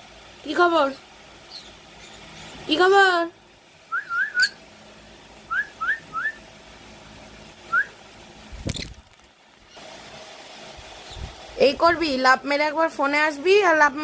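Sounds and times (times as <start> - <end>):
rising whistled notes: 3.9 - 4.6, 5.5 - 6.4.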